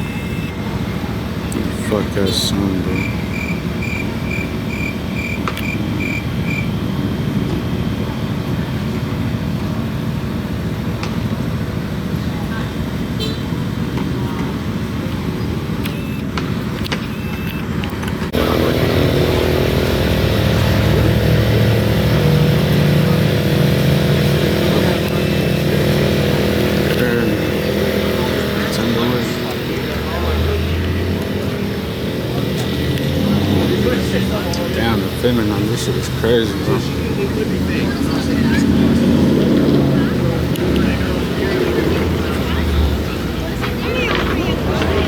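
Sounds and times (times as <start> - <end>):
high electronic beeps: 0.0 - 1.0, 2.7 - 6.8, 15.8 - 16.3, 17.0 - 17.7
car engines rumbling: 0.0 - 45.0.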